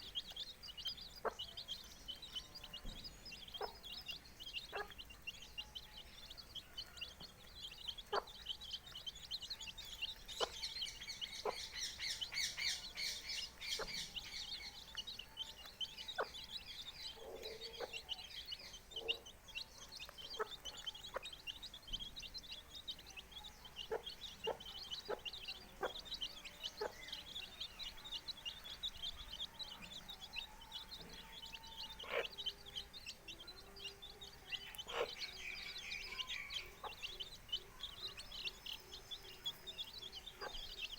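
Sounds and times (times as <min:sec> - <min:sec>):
chicks peeping: 0:00.0 - 0:40.9
hen clucking: 0:03.5 - 0:05.2, 0:08.0 - 0:08.4, 0:10.2 - 0:14.5, 0:20.2 - 0:21.7, 0:23.8 - 0:27.6, 0:32.0 - 0:32.5, 0:34.7 - 0:38.4, 0:40.1 - 0:40.9.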